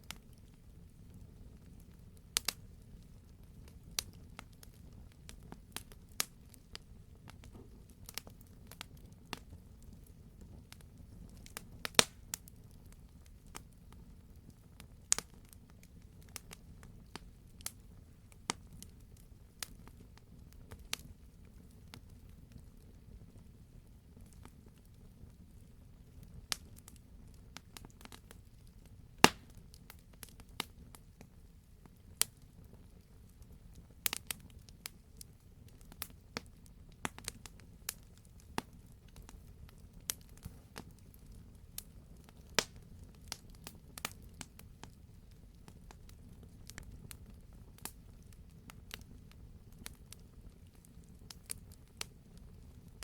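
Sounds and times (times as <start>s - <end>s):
sharp pops of fire: 0.0s - 12.8s, 15.1s - 19.0s, 26.5s - 30.9s, 33.4s - 45.0s
wood fire crackling: 0.0s - 53.0s.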